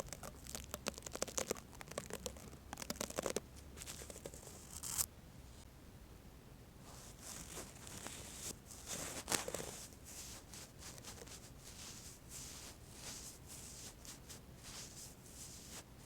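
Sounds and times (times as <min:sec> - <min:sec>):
brush swishing: 0:06.9 - 0:16.0.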